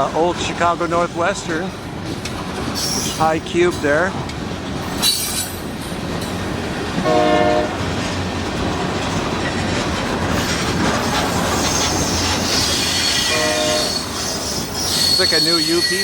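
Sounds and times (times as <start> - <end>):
wheels clacking on rail joints: 0.0 - 16.0
high wheel squeal: 2.8 - 3.2, 5.0 - 5.6, 10.4 - 16.0
short horn-like tone: 13.2 - 14.0.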